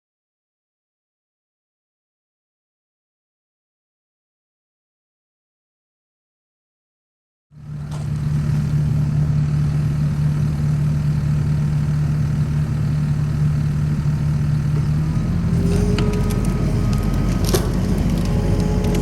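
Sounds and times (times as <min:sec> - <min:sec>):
chainsaw cutting a log: 0:14.7 - 0:19.0.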